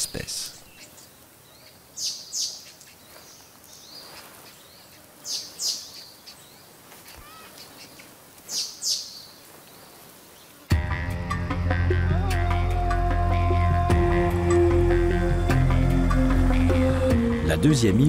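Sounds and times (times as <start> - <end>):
faint outdoor ambience: 0.0 - 11.5.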